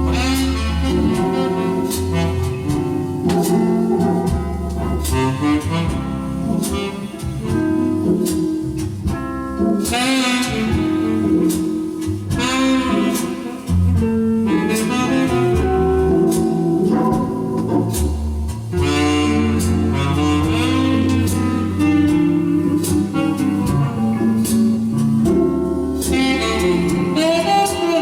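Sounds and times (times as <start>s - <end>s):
drum beat: 0.0s - 14.1s, 14.7s - 28.0s
music from a record: 0.0s - 28.0s.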